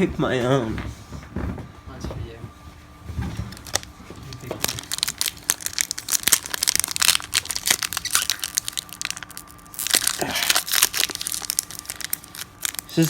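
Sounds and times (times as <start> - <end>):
wrapper crinkling: 3.5 - 13.0
wrapper tearing: 3.5 - 13.0.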